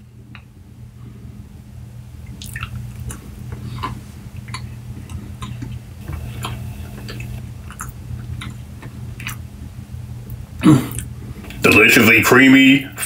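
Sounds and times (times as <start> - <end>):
steady low hum: 0.0 - 13.0
wet mouth clicks and smacks: 2.3 - 3.2, 6.4 - 9.4.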